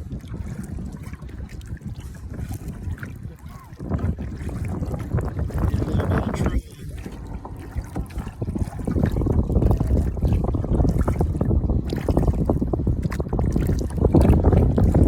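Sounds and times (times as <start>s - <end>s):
water splashing against kayak hull: 0.0s - 15.0s
wind rumble on microphone: 0.0s - 15.0s.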